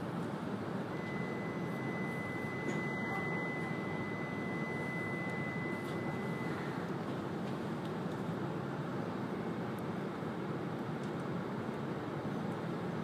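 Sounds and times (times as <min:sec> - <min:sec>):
thin high pure tone: 0:01.0 - 0:06.6.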